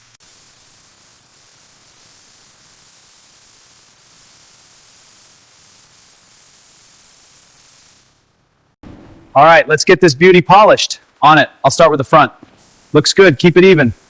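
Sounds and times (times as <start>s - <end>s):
spray paint gun hissing: 0.0s - 8.2s, 12.4s - 14.0s.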